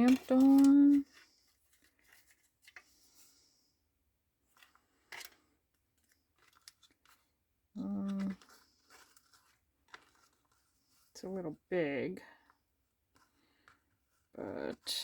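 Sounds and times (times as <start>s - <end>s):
paper rustling and clicks: 0.0s - 2.9s, 4.5s - 7.3s, 7.9s - 10.7s.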